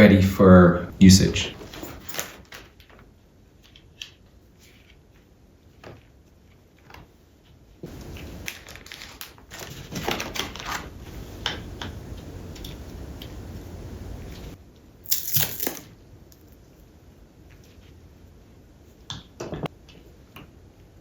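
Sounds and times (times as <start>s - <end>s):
rustling handling noise: 1.2s - 11.4s.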